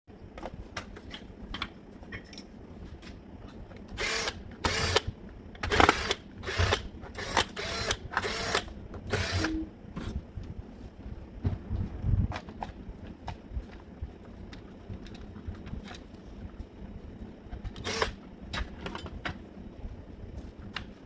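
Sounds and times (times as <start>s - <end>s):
impact drill motor spinning up: 4.0s - 9.5s, 17.8s - 18.2s.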